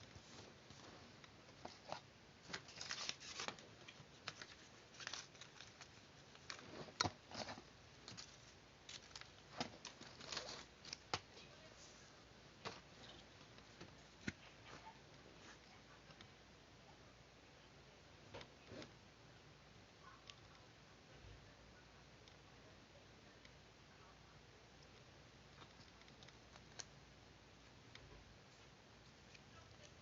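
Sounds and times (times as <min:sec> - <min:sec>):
paper rustling: 0:00.1 - 0:12.0.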